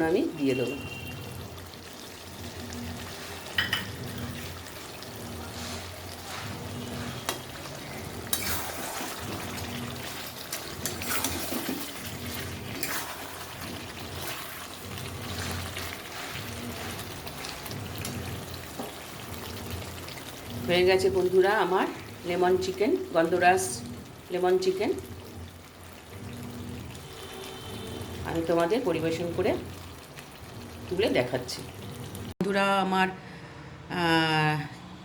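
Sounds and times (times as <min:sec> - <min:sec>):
chicken sizzling in a pan: 0:00.8 - 0:32.3
spatula scraping a pan: 0:03.0 - 0:19.1.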